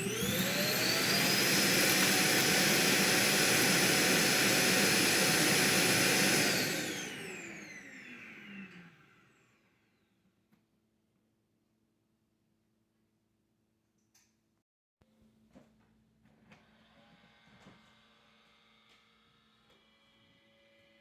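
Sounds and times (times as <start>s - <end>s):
suction motor whining: 0.0s - 9.0s.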